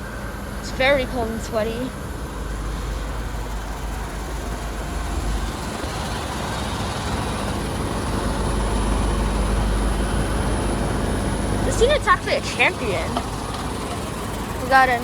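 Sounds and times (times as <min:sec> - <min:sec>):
heat pump fan whoosh: 0:00.0 - 0:15.0
low compressor hum: 0:00.0 - 0:15.0.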